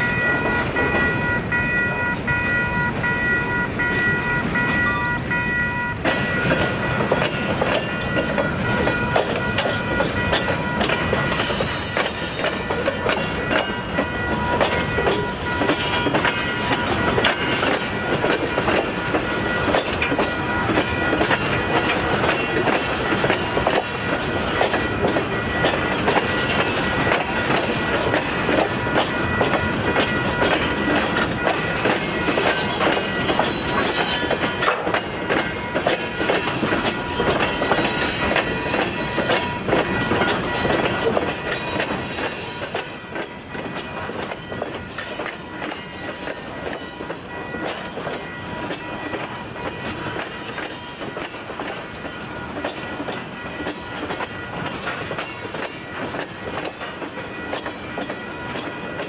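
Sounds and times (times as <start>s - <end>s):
pulsing ringing tone: 0.0s - 7.0s
freight train wheels clattering: 0.0s - 59.0s
high wheel squeals: 11.3s - 12.7s, 32.2s - 34.3s, 37.6s - 39.5s.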